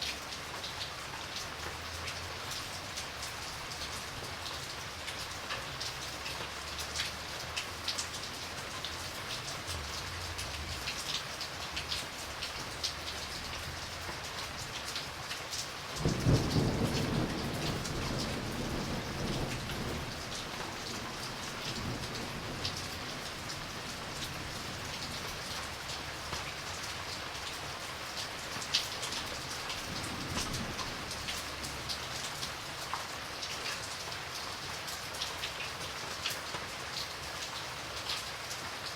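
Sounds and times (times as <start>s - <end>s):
rain falling: 0.0s - 38.9s
raindrops ticking: 0.1s - 38.7s
thunder rumbling: 16.0s - 25.8s, 29.4s - 32.2s.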